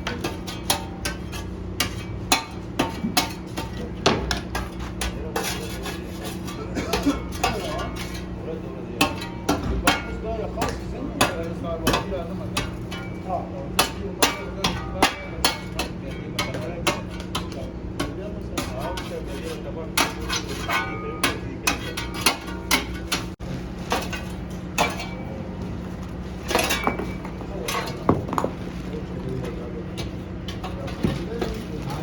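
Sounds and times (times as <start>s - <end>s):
steady mechanical hum: 0.0s - 32.0s
clinks and knocks: 26.4s - 32.0s.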